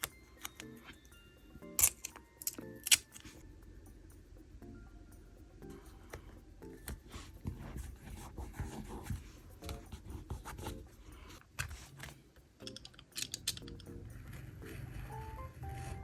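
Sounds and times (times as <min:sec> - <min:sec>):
paper scratching: 0:07.0 - 0:12.2, 0:13.7 - 0:16.0.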